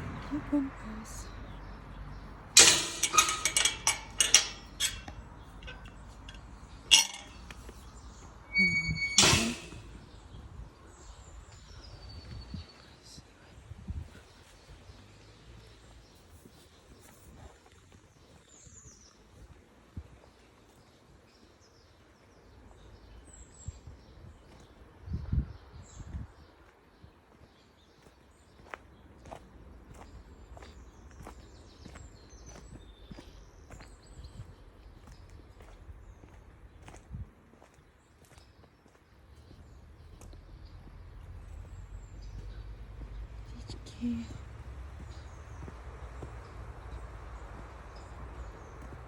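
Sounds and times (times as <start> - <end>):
outdoor background noise: 0.0 - 49.0
hard objects clinking: 2.6 - 7.7
high bird chirps: 8.5 - 10.0.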